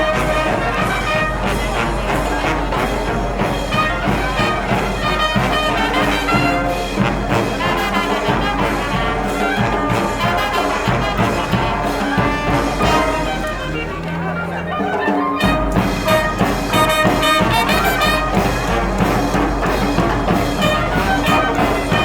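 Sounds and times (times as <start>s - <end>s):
regular drum beat: 0.0s - 14.4s, 15.0s - 22.0s
brass band procession music: 0.0s - 22.0s.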